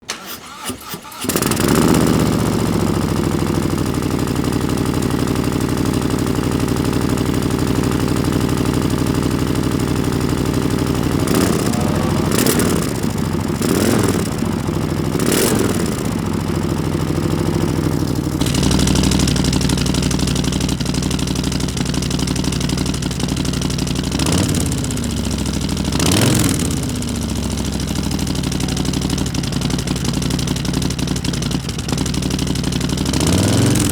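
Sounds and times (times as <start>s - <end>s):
motorcycle engine idling: 1.3s - 33.9s.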